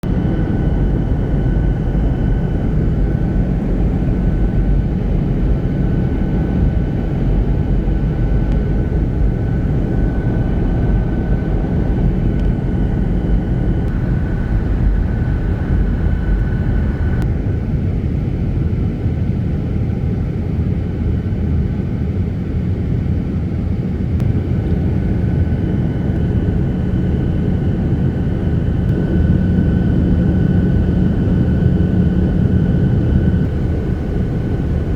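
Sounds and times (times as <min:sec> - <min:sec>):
airliner cabin rumble: 0:00.0 - 0:20.6, 0:24.1 - 0:34.9
faint high whine: 0:00.1 - 0:17.4.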